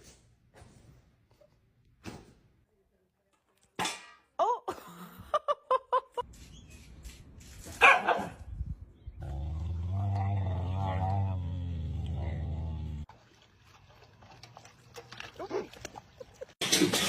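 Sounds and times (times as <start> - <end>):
dog barking: 7.8 - 8.4.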